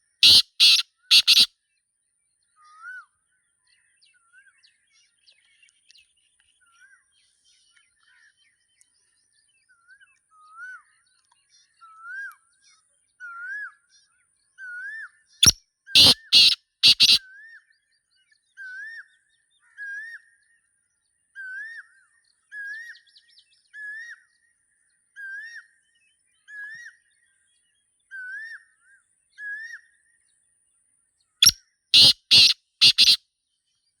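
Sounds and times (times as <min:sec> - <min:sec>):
francolin harsh call: 0:00.2 - 0:01.5, 0:16.0 - 0:17.2, 0:32.0 - 0:33.2.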